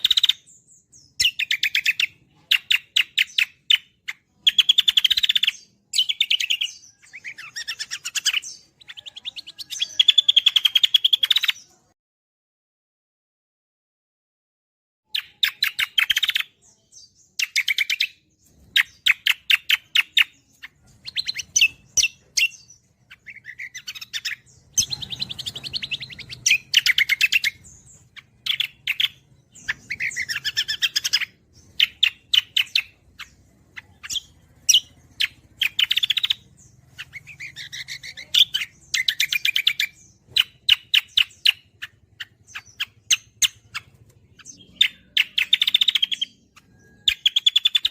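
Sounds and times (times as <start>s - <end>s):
bird singing chattering song: 0.0s - 12.0s, 15.1s - 47.9s.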